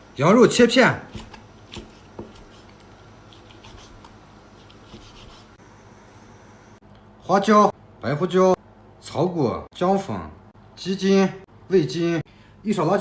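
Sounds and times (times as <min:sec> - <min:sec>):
knife slicing meat on board: 0:01.1 - 0:05.6.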